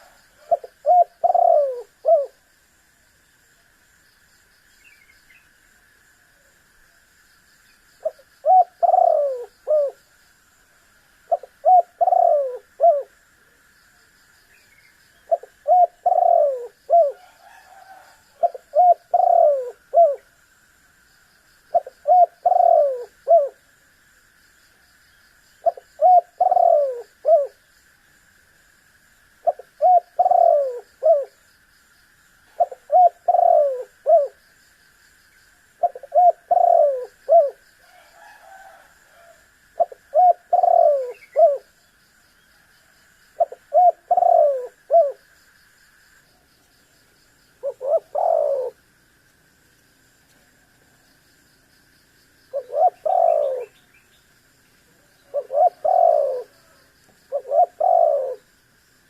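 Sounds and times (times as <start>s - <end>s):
dove cooing: 0.0s - 2.5s, 8.0s - 10.0s, 11.3s - 13.2s, 15.2s - 20.3s, 21.7s - 23.6s, 25.6s - 27.6s, 29.4s - 31.4s, 32.5s - 34.4s, 35.8s - 41.7s, 43.4s - 45.2s, 47.6s - 48.8s, 52.5s - 53.9s, 54.9s - 58.5s
faint steady hiss: 0.0s - 59.0s.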